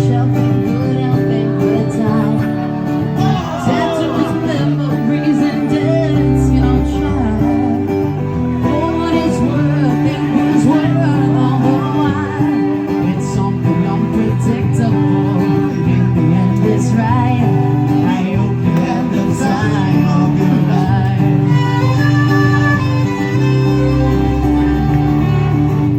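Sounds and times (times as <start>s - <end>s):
person singing: 0.0s - 24.7s
strummed acoustic guitar: 0.0s - 25.9s.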